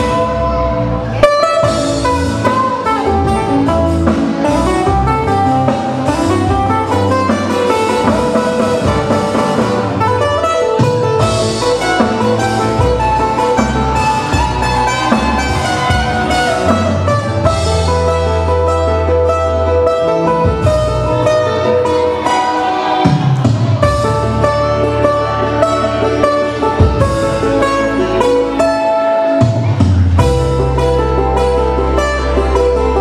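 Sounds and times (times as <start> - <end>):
instrumental band playing: 0.0 - 33.0
sliding guitar melody: 0.0 - 33.0.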